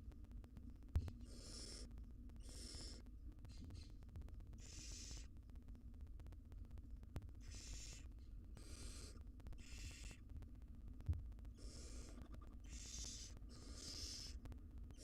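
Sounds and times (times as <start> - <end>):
owl chicks hissing begging calls: 1.2 - 3.0, 4.6 - 5.3, 7.4 - 10.2, 11.6 - 14.4.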